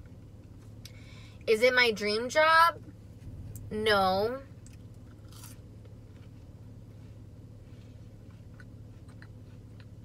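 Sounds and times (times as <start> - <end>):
low steady hum: 0.0 - 10.0
quiet chewing: 4.6 - 10.0.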